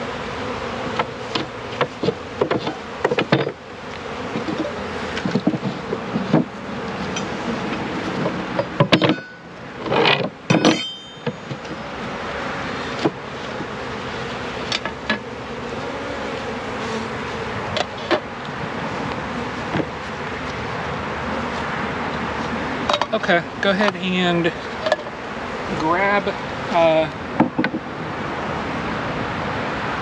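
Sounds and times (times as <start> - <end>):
bees buzzing: 0.0 - 30.0
knocks and clunks: 1.0 - 3.6, 4.3 - 6.5, 8.2 - 11.8, 27.4 - 27.8.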